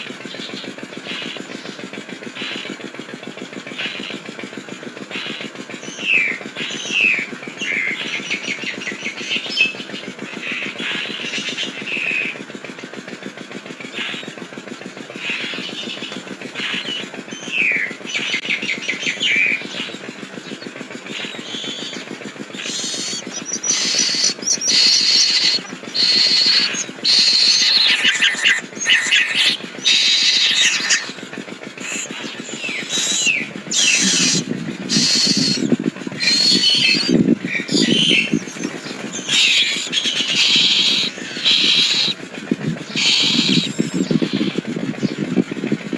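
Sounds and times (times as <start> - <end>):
steady low hum: 0.0 - 45.9
myna bird whistling and calling: 5.1 - 12.4, 15.2 - 31.2, 31.8 - 42.2, 42.8 - 45.2.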